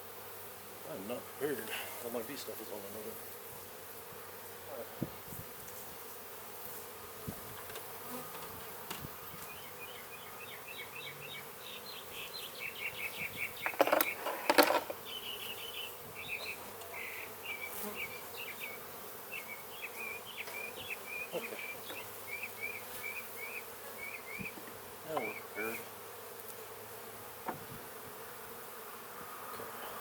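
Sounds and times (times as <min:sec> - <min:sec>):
honeybees buzzing: 0:00.0 - 0:30.0.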